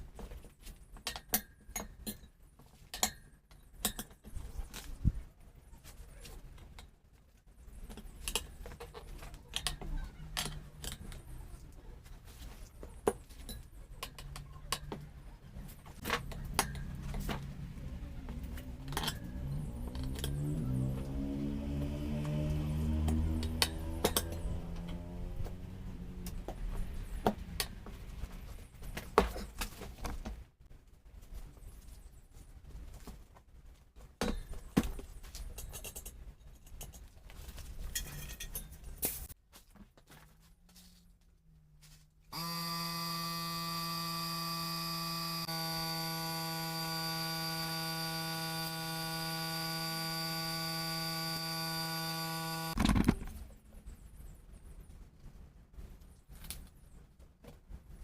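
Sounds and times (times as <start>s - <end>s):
metallic clicks and clinks: 37.9s - 39.4s.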